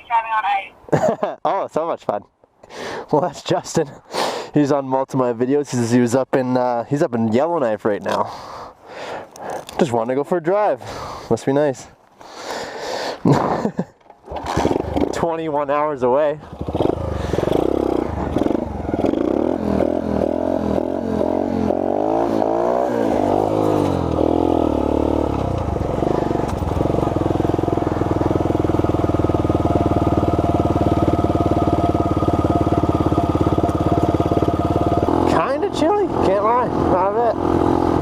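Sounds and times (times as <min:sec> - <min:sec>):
small motorcycle engine: 0:14.3 - 0:15.2, 0:16.4 - 0:38.0.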